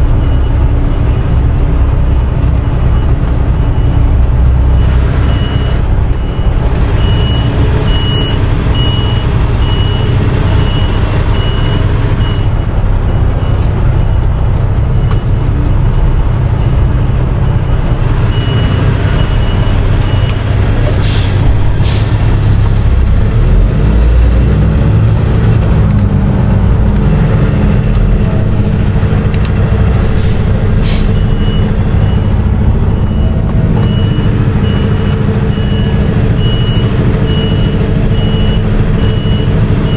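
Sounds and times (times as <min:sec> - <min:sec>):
reversing alarm beeping: 0:00.0 - 0:14.2, 0:14.8 - 0:21.3, 0:30.6 - 0:39.9
diesel truck engine running: 0:00.0 - 0:39.9.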